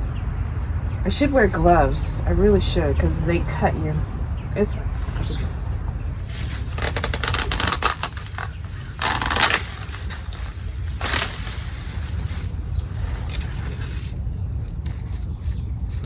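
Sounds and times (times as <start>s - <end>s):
low rumble: 0.0s - 16.0s
corn husks rustling and crackling: 4.6s - 16.0s.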